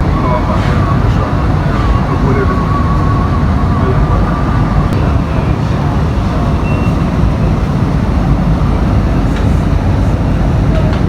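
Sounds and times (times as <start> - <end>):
train wheels and motors rumbling: 0.0 - 11.0.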